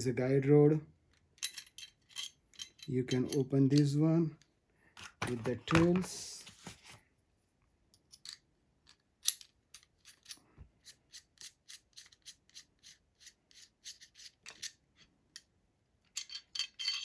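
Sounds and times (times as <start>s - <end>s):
metal parts scraping: 1.4s - 3.9s, 9.2s - 15.1s, 16.1s - 17.0s.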